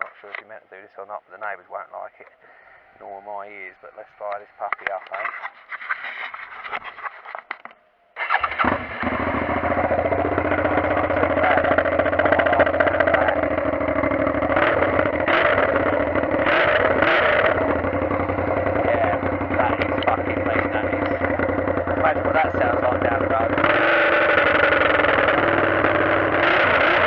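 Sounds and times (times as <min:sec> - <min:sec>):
motorcycle engine revving: 0:08.2 - 0:27.0.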